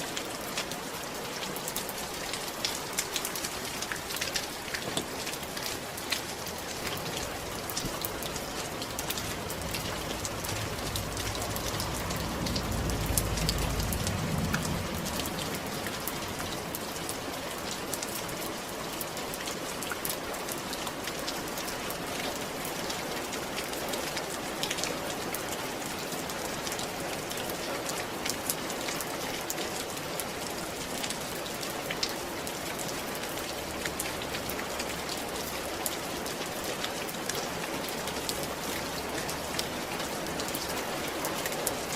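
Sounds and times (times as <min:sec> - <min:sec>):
rain on a roof: 0:00.0 - 0:41.9
low rumble: 0:09.2 - 0:16.7.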